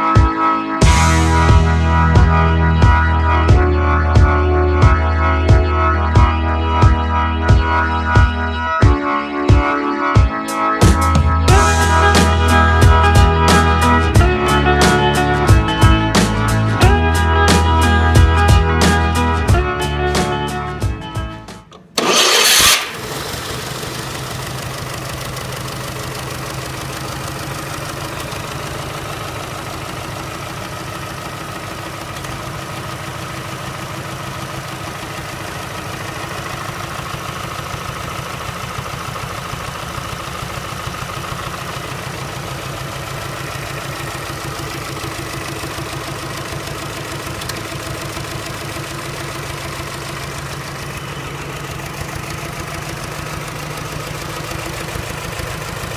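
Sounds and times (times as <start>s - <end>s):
engine idling: 11.2s - 55.9s.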